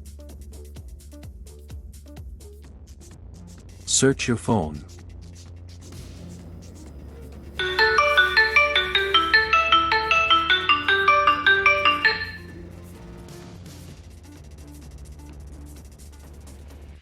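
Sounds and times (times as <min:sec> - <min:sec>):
marimba-like phone ringtone: 0:07.6 - 0:12.5.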